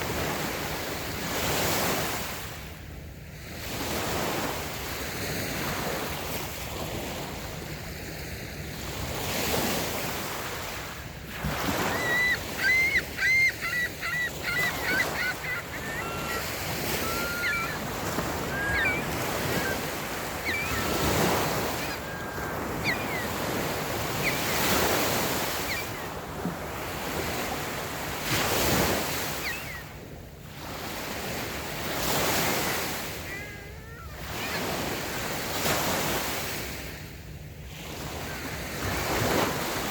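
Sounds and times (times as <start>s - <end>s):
small waves washing on sand: 0.0s - 39.9s
bird short high calls: 11.7s - 26.0s, 29.2s - 29.9s.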